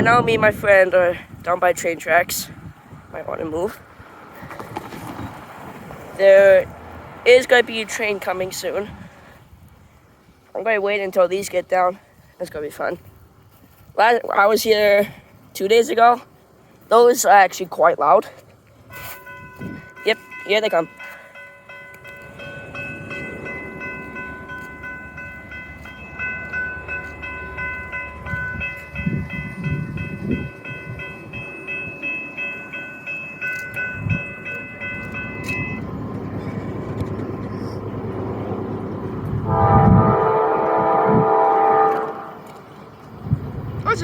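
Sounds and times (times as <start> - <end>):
train rumble: 0.0 - 11.3, 18.7 - 44.0
railroad crossing bell ringing: 6.2 - 6.7, 18.8 - 44.0
locomotive horn: 39.3 - 42.6.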